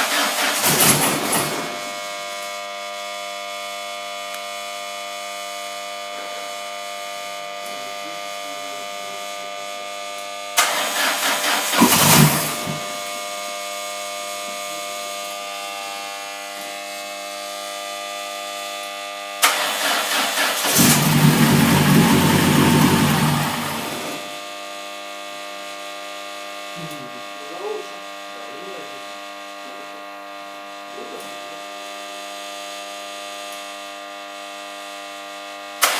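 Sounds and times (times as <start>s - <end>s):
engine starter cranking: 0.0s - 1.5s, 10.6s - 12.8s, 19.4s - 24.2s
engine running: 11.6s - 13.0s, 20.6s - 24.3s.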